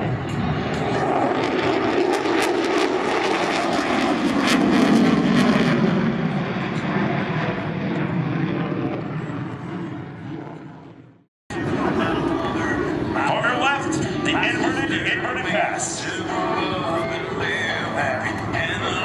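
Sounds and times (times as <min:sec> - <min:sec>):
fighter jet engine roar: 0:00.0 - 0:19.0.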